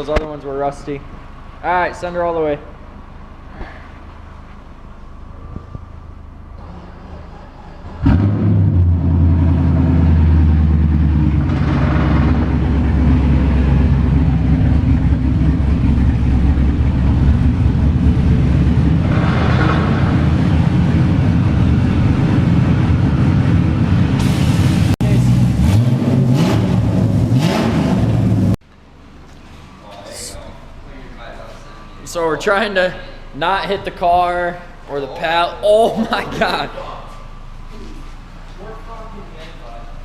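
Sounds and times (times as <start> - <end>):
car engine starting and running: 0.0 - 30.9.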